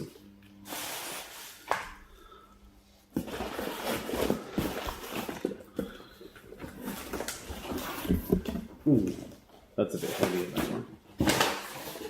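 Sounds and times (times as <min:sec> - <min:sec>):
packaging rustling: 0:03.2 - 0:09.2.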